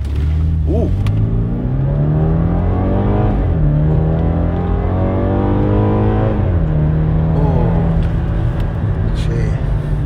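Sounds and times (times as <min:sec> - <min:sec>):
car engine accelerating hard: 0:00.0 - 0:10.0.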